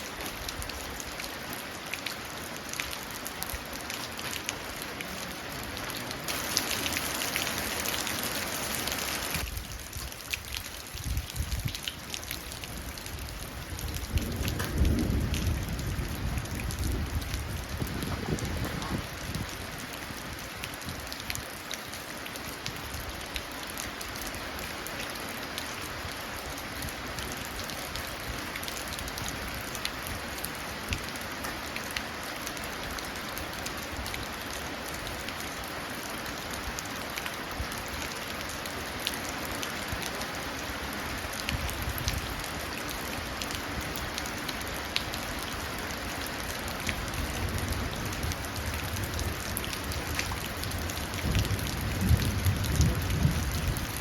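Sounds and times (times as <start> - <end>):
rain pattering into a puddle: 0.0 - 54.0
distant thunder rumble: 13.9 - 19.1.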